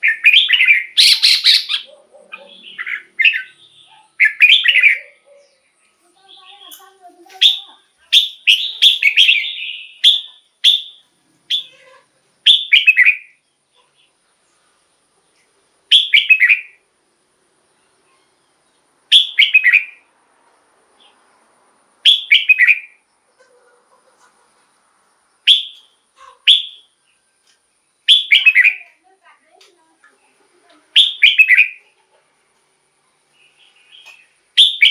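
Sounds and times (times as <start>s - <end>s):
bird singing: 0.0s - 14.7s, 15.9s - 16.8s, 17.7s - 20.1s, 22.0s - 23.7s, 25.3s - 29.0s, 30.1s - 32.0s, 33.0s - 34.9s.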